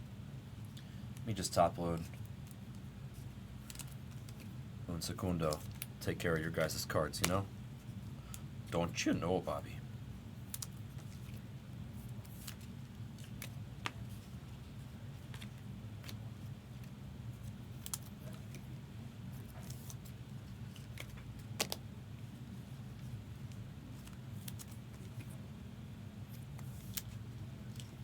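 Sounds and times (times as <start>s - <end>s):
steady low hum: 0.0s - 28.0s
plastic clicks of trading cards: 3.6s - 4.5s, 5.4s - 7.4s, 10.5s - 11.4s, 17.7s - 18.7s, 19.4s - 21.8s, 23.0s - 25.4s, 26.3s - 28.0s.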